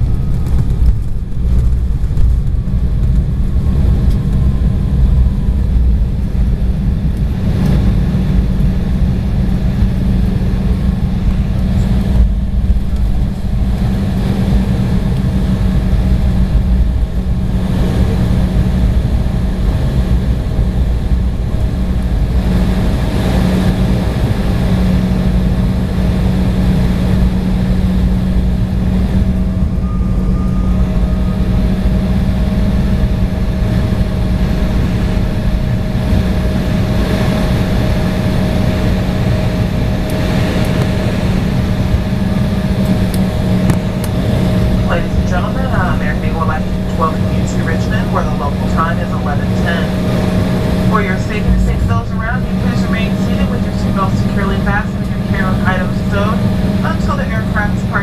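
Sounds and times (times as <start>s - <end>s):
airliner cabin engine rumble: 0.0s - 58.0s
steady hum: 0.0s - 58.0s
faint high tone: 29.4s - 32.6s.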